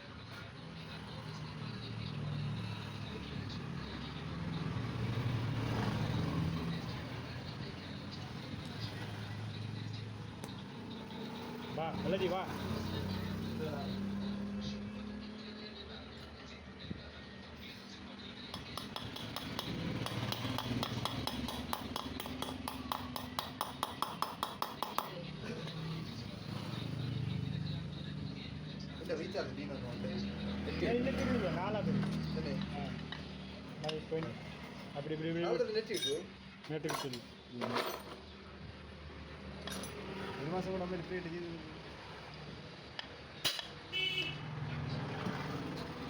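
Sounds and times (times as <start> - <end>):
rapid metallic clinking: 18.5 - 25.2.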